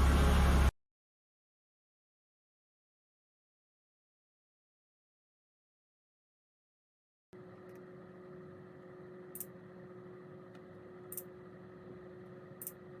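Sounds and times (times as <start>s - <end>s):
faint hum with held tone: 7.4s - 13.0s.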